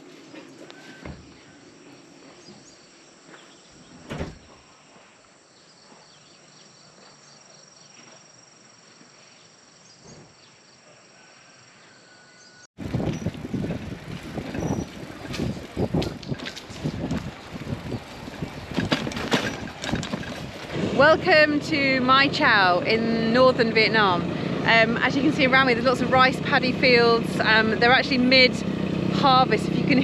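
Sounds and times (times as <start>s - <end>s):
insects chirping: 0.2s - 12.6s.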